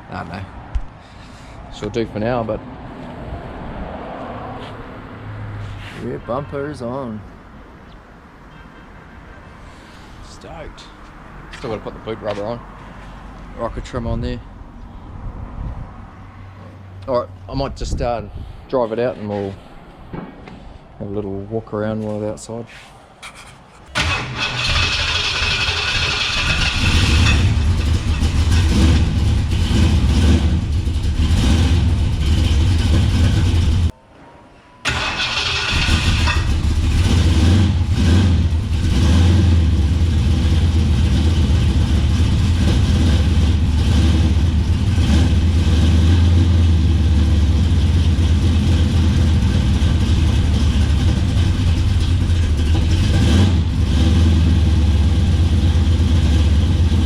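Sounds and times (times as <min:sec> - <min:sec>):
engine cranking and starting: 0:23.2 - 0:33.9, 0:34.8 - 0:39.0
engine idling: 0:23.9 - 0:33.9, 0:34.9 - 0:57.0.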